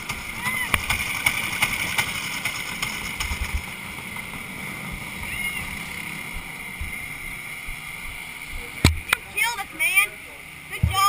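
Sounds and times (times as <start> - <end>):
low thumps: 10.8 - 11.0.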